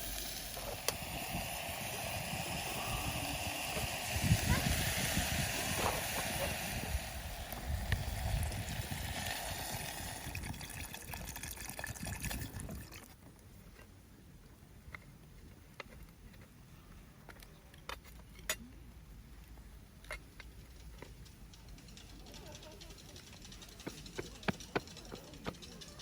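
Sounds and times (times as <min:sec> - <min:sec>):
water pouring: 0:00.0 - 0:13.2.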